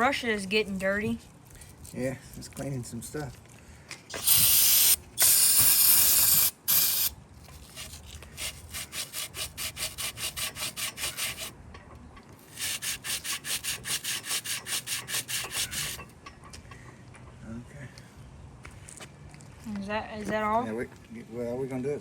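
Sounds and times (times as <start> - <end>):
spray hissing: 4.1 - 7.2, 12.5 - 16.0
stiff brush scrubbing metal: 7.6 - 11.6, 12.5 - 16.1.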